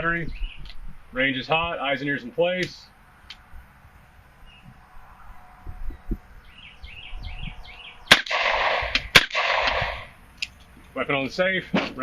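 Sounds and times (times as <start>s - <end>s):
gunshots with ringing tail: 8.1s - 10.2s.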